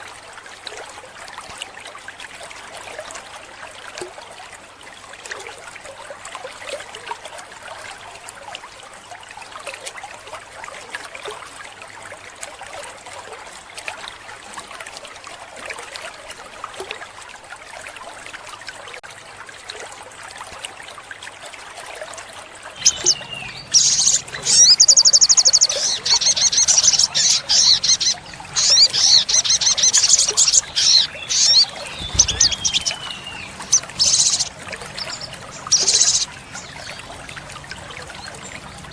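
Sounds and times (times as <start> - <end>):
trickling water: 0.0 - 38.9
bird singing trills and chips: 22.8 - 37.2.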